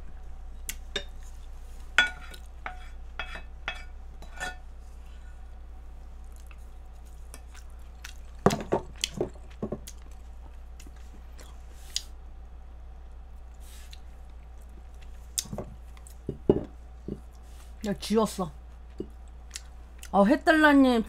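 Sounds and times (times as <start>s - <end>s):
low electrical hum: 0.0s - 21.0s
wet chewing: 6.2s - 12.2s, 18.8s - 20.1s.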